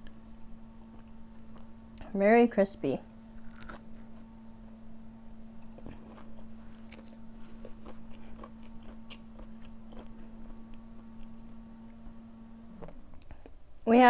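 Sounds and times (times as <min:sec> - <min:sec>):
crunchy chewing: 0:03.3 - 0:12.0.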